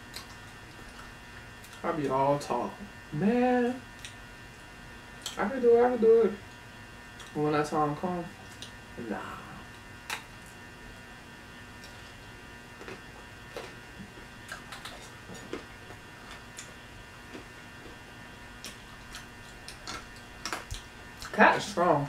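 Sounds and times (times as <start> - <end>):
mouth clicks and crunches while chewing: 0.0 - 1.9, 3.9 - 5.4, 6.5 - 7.4, 8.4 - 8.8, 9.7 - 10.6, 11.8 - 21.4
faint electrical hum: 0.0 - 22.0.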